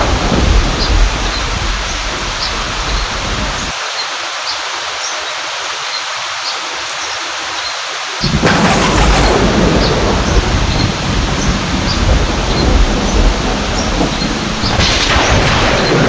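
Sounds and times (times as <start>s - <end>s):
low thunder rumble: 0.0s - 3.7s, 8.2s - 16.0s
heavy rain hissing: 0.0s - 16.0s.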